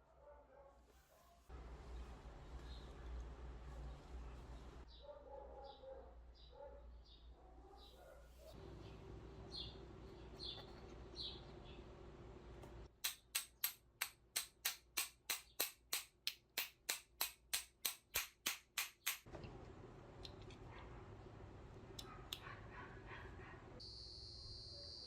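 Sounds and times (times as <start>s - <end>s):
low steady hum: 1.5s - 4.9s, 8.6s - 12.9s
faint chirps: 23.8s - 25.0s.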